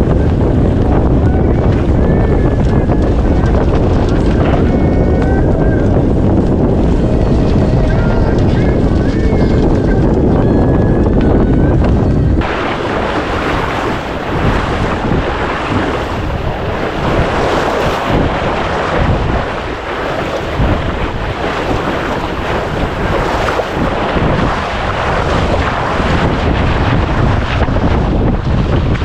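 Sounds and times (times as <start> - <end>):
waves splashing: 0.0 - 10.1, 12.4 - 29.0
wind buffeting microphone: 0.0 - 29.0.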